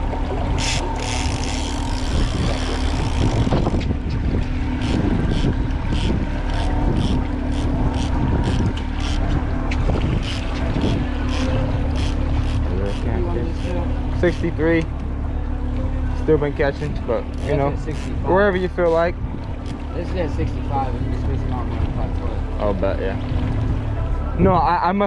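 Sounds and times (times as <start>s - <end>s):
boat motor rumbling: 0.0s - 25.0s
wind buffeting microphone: 1.8s - 12.0s, 19.0s - 19.7s.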